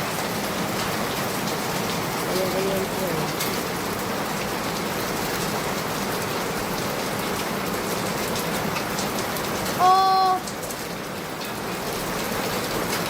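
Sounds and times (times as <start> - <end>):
steady rain hiss: 0.0 - 13.0.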